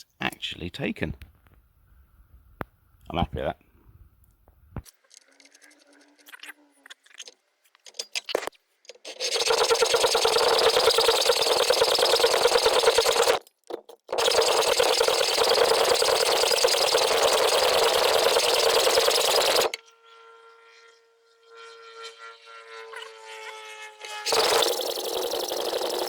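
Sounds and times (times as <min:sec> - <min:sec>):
welding arc crackling: 0:24.3 - 0:26.0.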